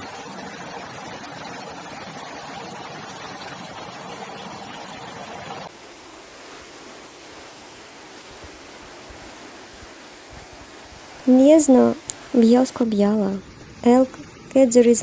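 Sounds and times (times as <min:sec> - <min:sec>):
rushing floodwater: 0:00.0 - 0:05.7.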